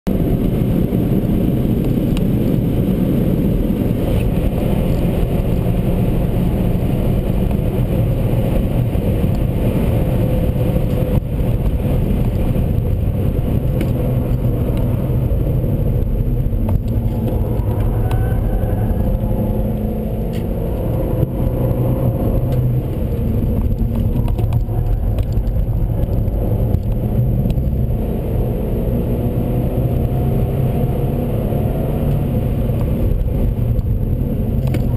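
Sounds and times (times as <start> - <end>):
road noise: 0.0 - 34.9
car engine accelerating: 0.1 - 34.9.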